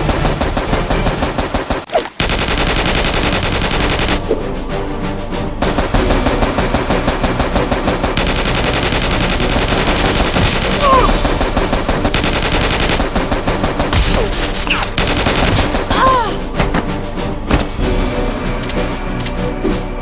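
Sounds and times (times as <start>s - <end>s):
rapid automatic gunfire: 0.0s - 4.2s, 5.8s - 14.4s, 15.0s - 15.9s.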